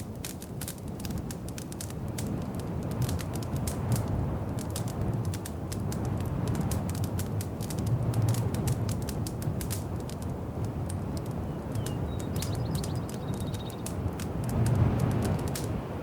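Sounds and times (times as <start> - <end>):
wood fire crackling: 0.0 - 16.0
bird-like chirps: 11.4 - 13.9.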